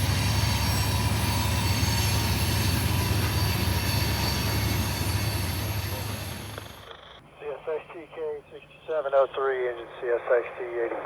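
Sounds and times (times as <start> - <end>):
rolling rail noise: 0.0 - 7.0
diesel locomotive engine drone: 0.0 - 9.0.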